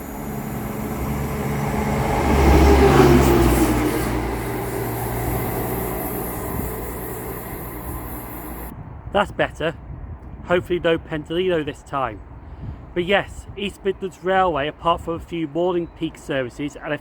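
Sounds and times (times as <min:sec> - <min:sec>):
train passing: 0:00.0 - 0:08.7.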